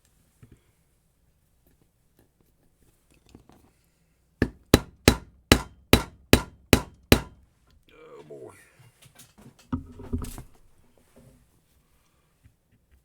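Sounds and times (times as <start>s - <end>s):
plastic mallet tapping on metal: 4.4s - 7.4s.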